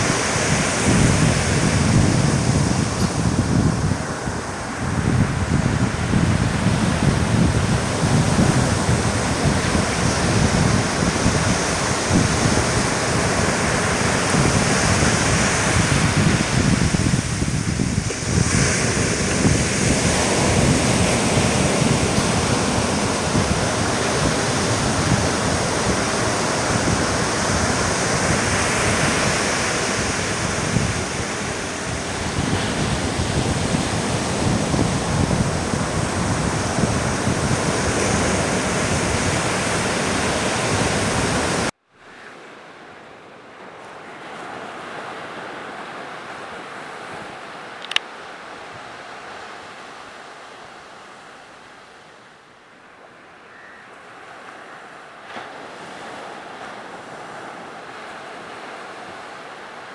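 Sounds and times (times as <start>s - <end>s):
wind buffeting microphone: 0.0s - 41.7s
surf rushing on a beach: 0.0s - 59.9s.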